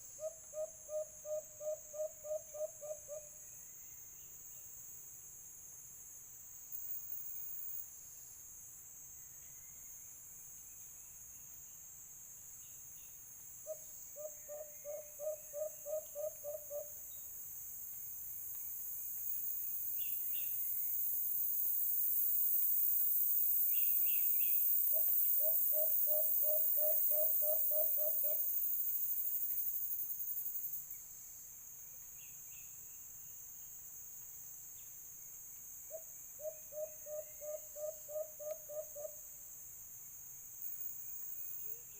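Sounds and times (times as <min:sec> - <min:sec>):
high insect drone: 0:00.0 - 0:41.9
dove hooting: 0:13.7 - 0:16.9
bird chirps: 0:13.7 - 0:17.3.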